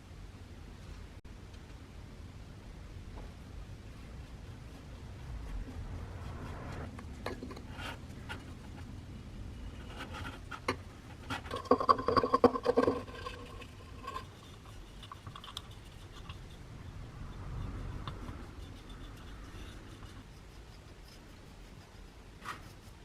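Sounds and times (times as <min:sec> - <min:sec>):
hand scraping and rubbing: 0:03.7 - 0:23.0.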